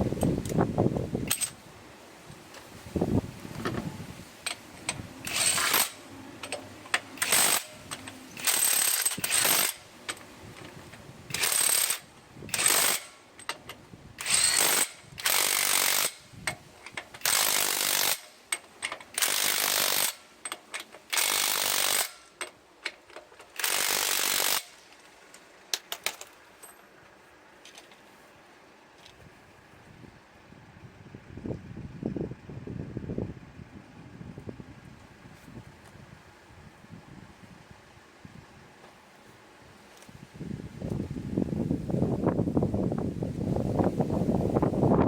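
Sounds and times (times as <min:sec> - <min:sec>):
impact wrench hammering: 0:04.5 - 0:09.8.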